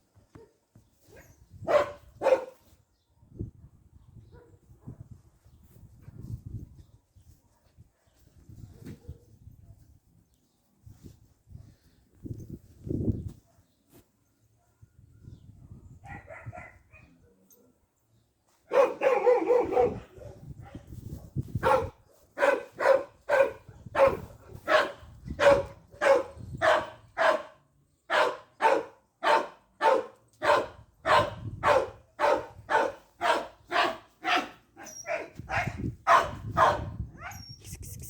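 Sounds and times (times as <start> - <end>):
dog barking: 1.6 - 2.6, 4.3 - 5.1, 8.8 - 9.8, 16.0 - 17.2, 18.7 - 37.4.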